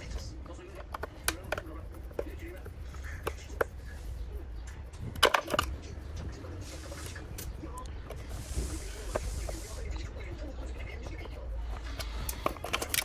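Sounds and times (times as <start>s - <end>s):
low steady hum: 0.0s - 13.0s
clicks and taps of small objects: 0.8s - 1.7s.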